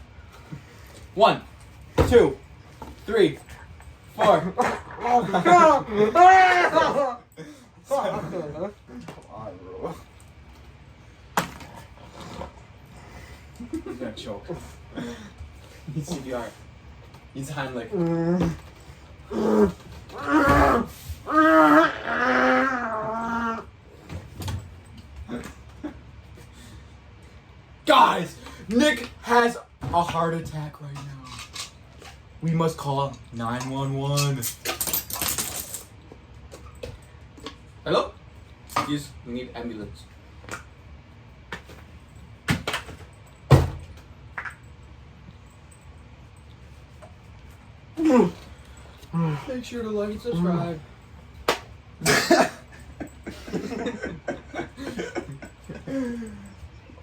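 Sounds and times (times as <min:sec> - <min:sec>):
person yelling: 0:05.0 - 0:07.2.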